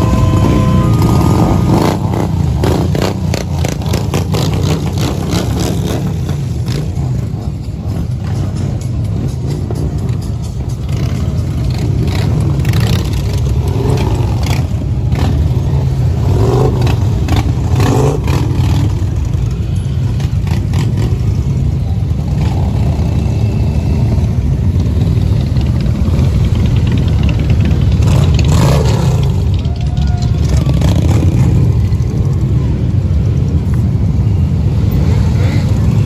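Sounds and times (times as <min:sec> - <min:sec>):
motorcycle engines rumbling: 0:00.0 - 0:36.0.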